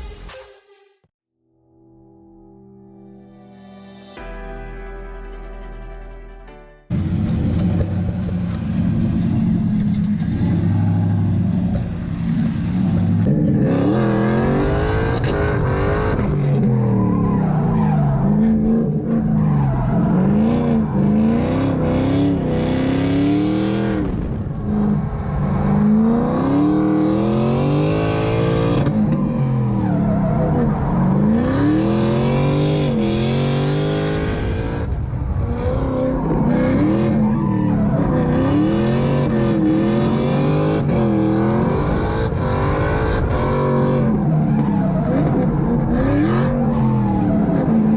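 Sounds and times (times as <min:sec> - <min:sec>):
car engines revving hard: 0:06.9 - 0:47.9.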